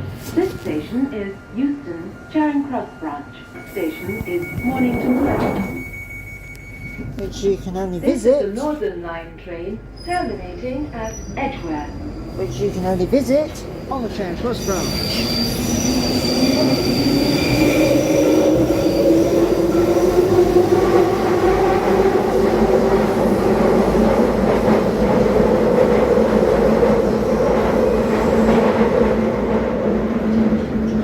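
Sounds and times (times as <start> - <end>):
high wheel squeal: 14.5 - 19.6.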